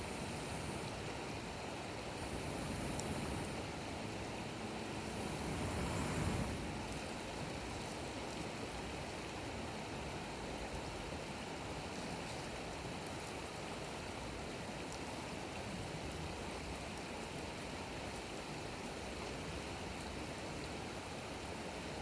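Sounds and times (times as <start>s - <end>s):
campfire rushing hiss: 0.0s - 7.3s.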